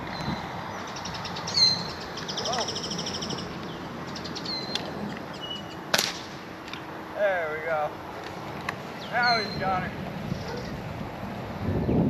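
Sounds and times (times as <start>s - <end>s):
birds chirping and trilling: 0.0s - 10.8s
rifle shot: 5.9s - 6.3s.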